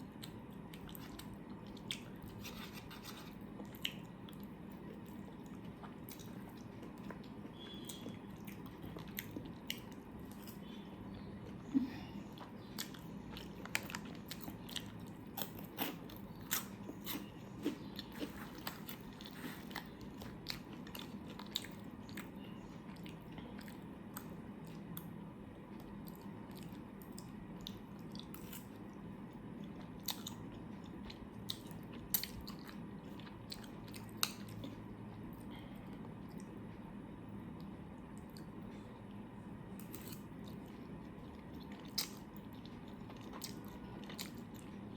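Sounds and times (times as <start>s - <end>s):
person chewing food: 0.0s - 36.9s, 37.6s - 44.9s.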